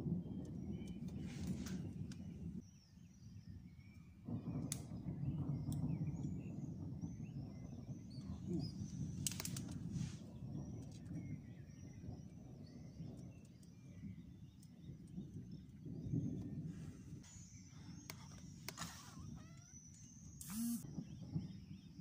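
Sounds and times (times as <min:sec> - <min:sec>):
distant thunder rumbling: 0:00.0 - 0:02.6, 0:04.2 - 0:22.0
birds chirping: 0:00.0 - 0:22.0
sharp clicks: 0:20.4 - 0:20.8.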